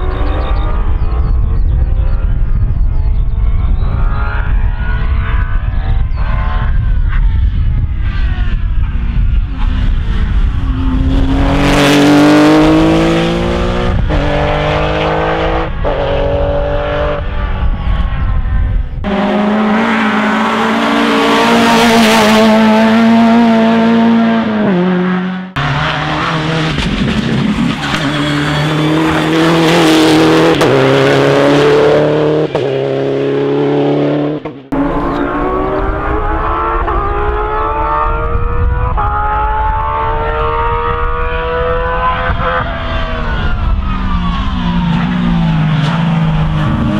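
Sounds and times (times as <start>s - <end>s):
rally car engines at full throttle: 0.0s - 46.9s.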